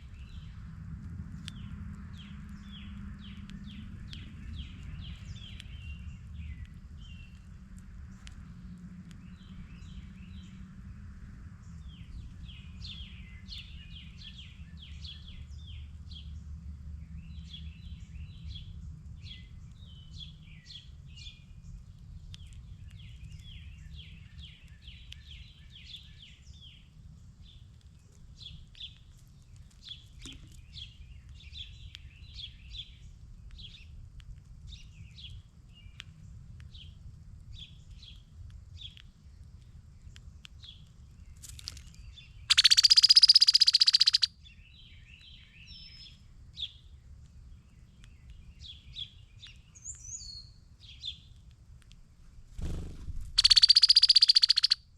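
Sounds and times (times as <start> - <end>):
steady low rumble: 0.0 - 41.4, 50.6 - 54.6
songbirds chirping and twittering: 0.0 - 54.9
harsh buzzy bird call: 42.5 - 44.3, 53.4 - 54.8.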